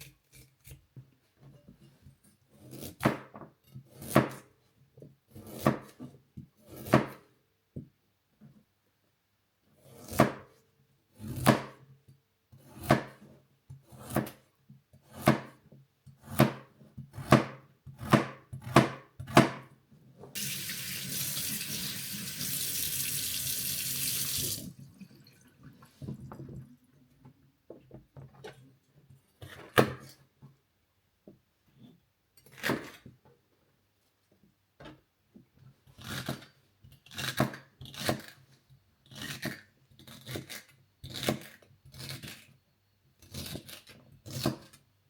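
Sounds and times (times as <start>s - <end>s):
water tap running into sink: 20.4s - 25.4s.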